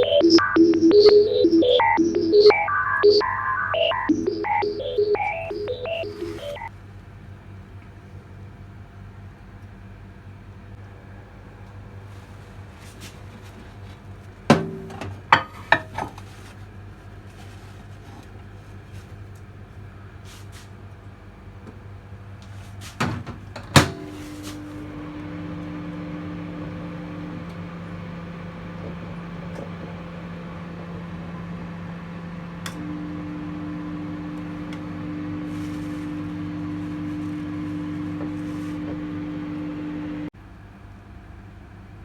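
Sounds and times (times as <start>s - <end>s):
microwave oven humming: 12.6s - 40.6s.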